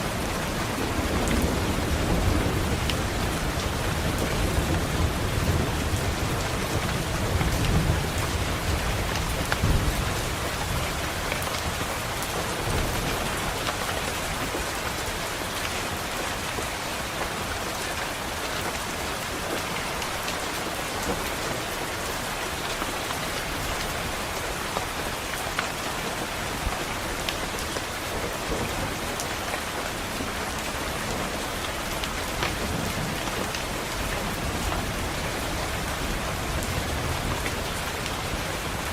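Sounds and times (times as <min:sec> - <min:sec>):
thunder rumble: 0:00.0 - 0:13.7
rain pattering on a window: 0:00.0 - 0:38.9.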